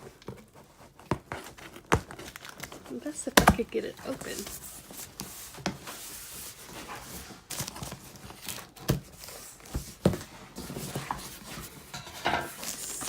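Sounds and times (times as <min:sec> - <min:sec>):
cardboard box scraping and rustling: 0:03.8 - 0:13.0.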